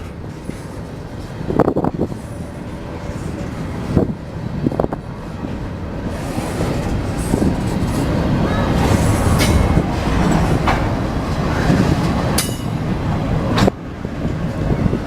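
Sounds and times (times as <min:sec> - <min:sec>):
train rumbling past: 0:00.0 - 0:15.0
wheel clacks over rail joints: 0:04.6 - 0:13.8.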